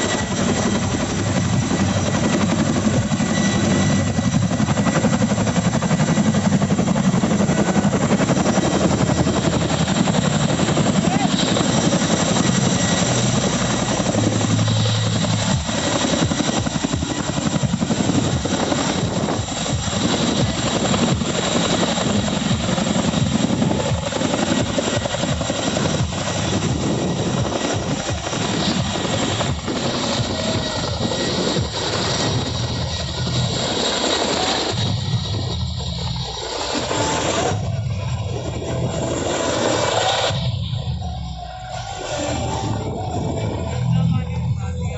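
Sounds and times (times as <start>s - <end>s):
helicopter rotor blades beating: 0.0s - 44.9s
thin high whine: 0.0s - 44.9s.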